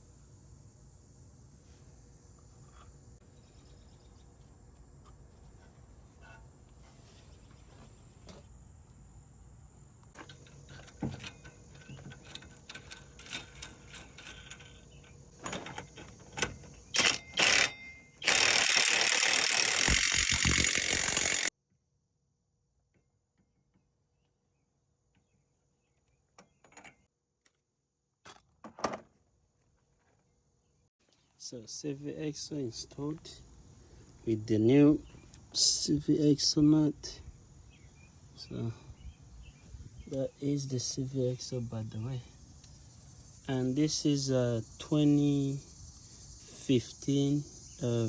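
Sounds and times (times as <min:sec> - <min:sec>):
hand tools clinking and rattling: 0:10.1 - 0:21.5.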